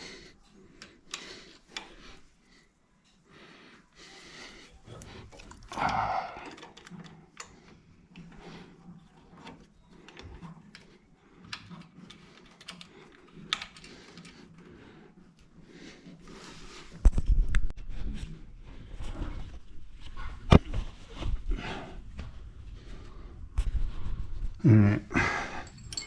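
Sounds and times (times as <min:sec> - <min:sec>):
hand tools clicking and tapping: 0:05.0 - 0:08.4.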